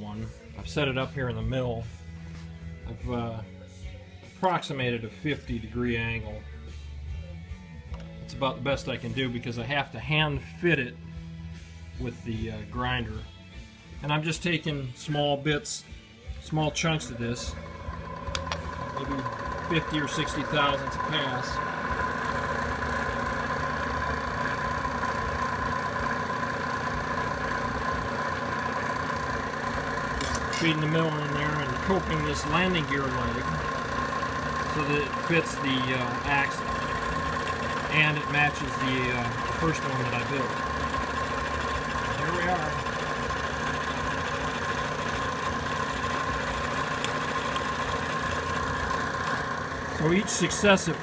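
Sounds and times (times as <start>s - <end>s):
milling machine whining: 16.3s - 51.0s.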